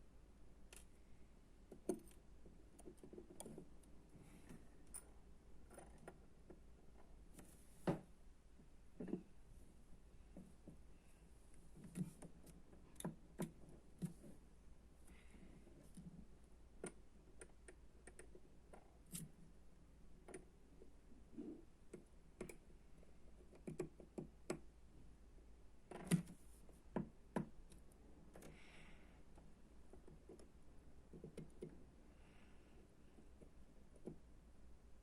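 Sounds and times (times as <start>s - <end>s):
small clicks and taps: 1.7s - 8.0s, 16.7s - 19.4s, 20.2s - 22.8s, 23.4s - 24.7s, 25.9s - 31.9s, 33.2s - 34.3s.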